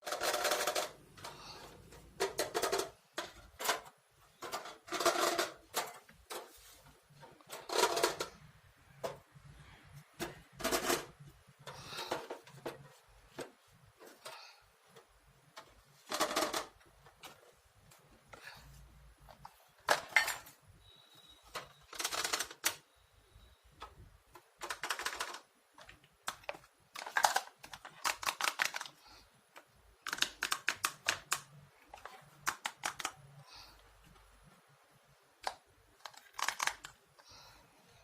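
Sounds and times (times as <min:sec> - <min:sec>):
plastic toy pieces clicking: 0:00.0 - 0:01.4, 0:02.2 - 0:06.0, 0:16.1 - 0:16.8, 0:21.5 - 0:22.8, 0:24.3 - 0:29.0, 0:30.0 - 0:33.3, 0:35.4 - 0:37.0
packaging rustling: 0:24.6 - 0:29.0.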